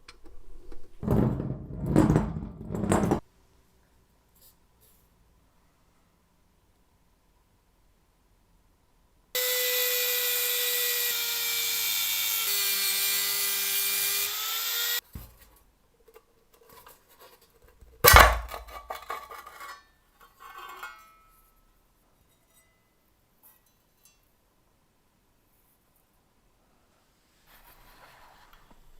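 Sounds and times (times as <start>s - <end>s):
electric power tool running: 9.4s - 15.0s.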